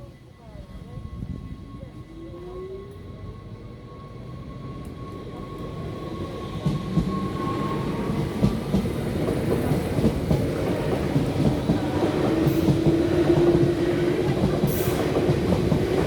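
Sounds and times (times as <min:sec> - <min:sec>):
train rumbling: 0:00.1 - 0:16.0.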